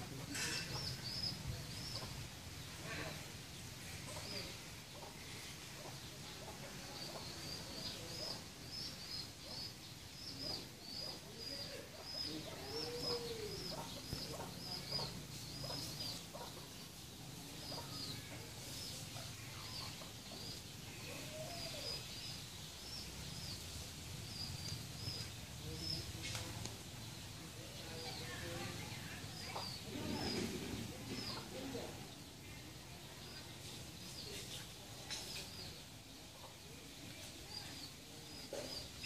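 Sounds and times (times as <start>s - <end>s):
bird chirping: 4.0s - 32.4s.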